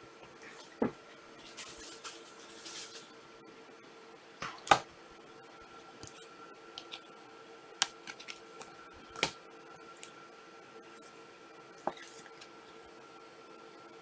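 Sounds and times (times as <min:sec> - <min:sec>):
trading cards clicking and tapping: 0:06.8 - 0:07.0, 0:07.8 - 0:09.4.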